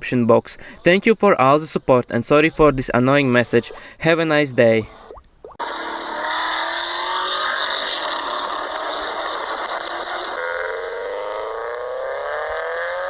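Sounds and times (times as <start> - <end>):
car engine accelerating hard: 5.6 - 13.0.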